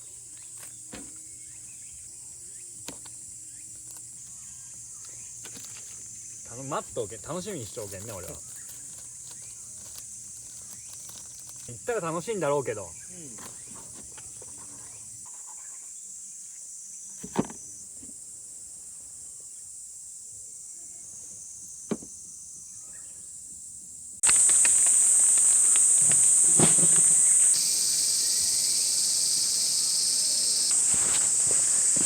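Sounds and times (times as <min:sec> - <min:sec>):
insects chirping: 0:00.0 - 0:32.0
crackles: 0:07.5 - 0:11.9, 0:24.2 - 0:29.8.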